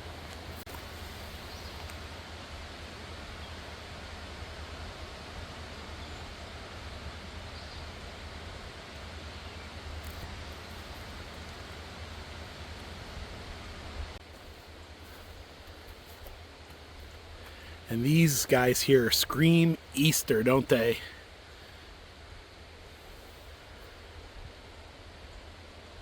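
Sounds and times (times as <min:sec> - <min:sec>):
mountain stream rushing: 0:17.4 - 0:21.7.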